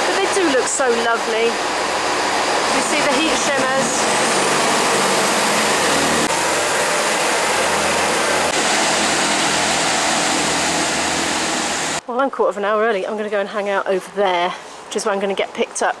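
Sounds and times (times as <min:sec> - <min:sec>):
train engine and fan noise: 0:00.0 - 0:12.1.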